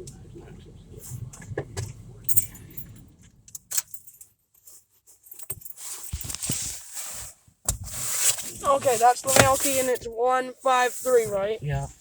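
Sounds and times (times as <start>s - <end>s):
keys jingling: 2.2s - 6.7s.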